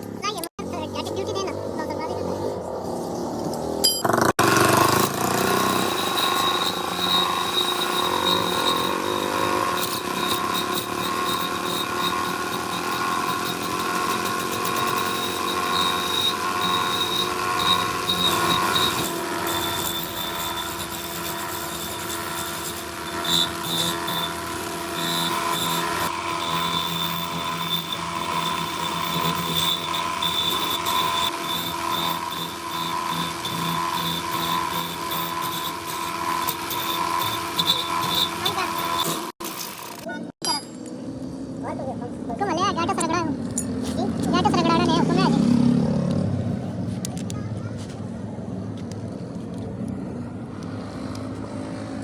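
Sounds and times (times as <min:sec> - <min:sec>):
motor tool whining: 0:00.0 - 0:41.6, 0:42.8 - 0:52.0.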